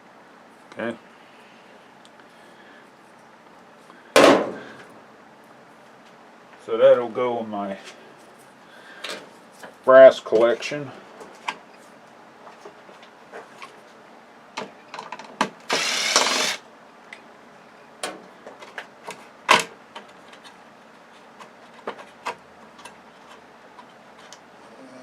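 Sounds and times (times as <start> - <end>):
hand tools clicking and knocking: 15.7 - 16.6
harsh burst of noise: 15.7 - 16.6.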